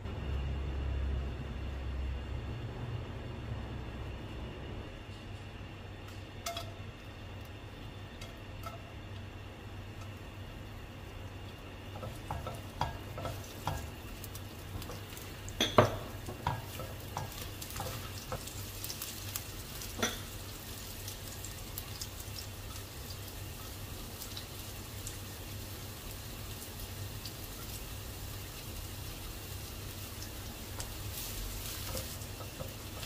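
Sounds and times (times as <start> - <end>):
shallots sizzling in oil: 6.0 - 33.0
spatula knocking against wok: 11.9 - 14.0, 15.6 - 18.5, 31.8 - 33.0.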